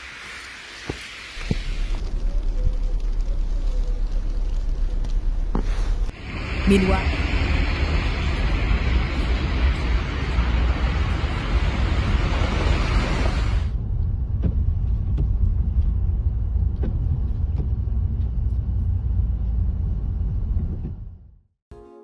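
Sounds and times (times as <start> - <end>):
rushing hiss: 0.0 - 13.7
low rumble: 1.4 - 21.4.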